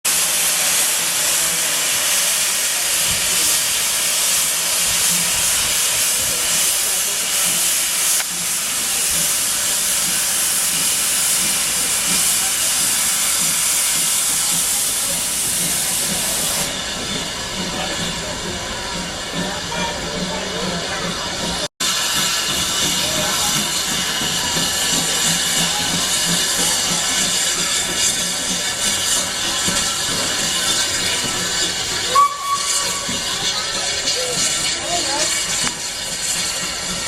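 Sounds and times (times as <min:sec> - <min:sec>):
steam locomotive hissing: 0:00.1 - 0:37.0.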